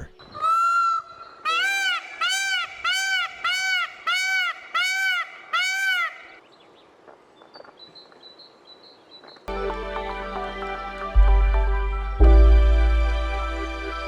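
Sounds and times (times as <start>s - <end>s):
peafowl honking calls: 0.0s - 6.4s.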